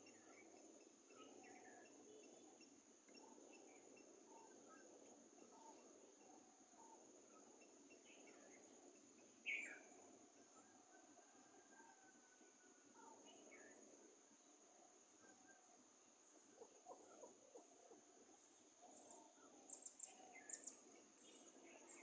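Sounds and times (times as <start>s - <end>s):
bird calls and chirps: 0.0s - 10.7s, 16.3s - 22.0s
insect drone: 0.0s - 16.6s.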